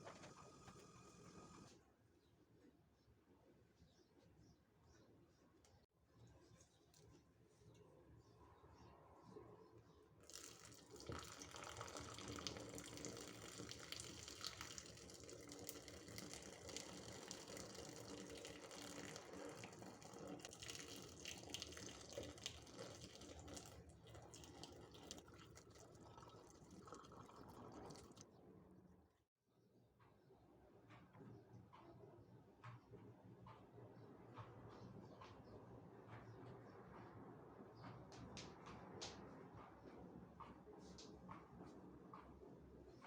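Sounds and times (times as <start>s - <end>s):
tap water running into sink: 10.2s - 28.2s.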